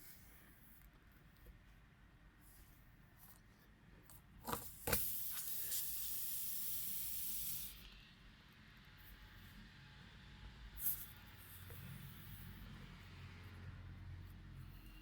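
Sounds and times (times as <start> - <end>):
air hissing from tyre: 4.8 - 7.9, 10.8 - 11.7.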